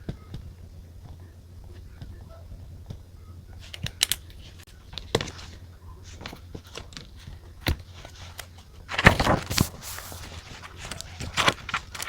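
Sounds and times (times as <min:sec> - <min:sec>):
paper rustling: 0:03.6 - 0:12.0.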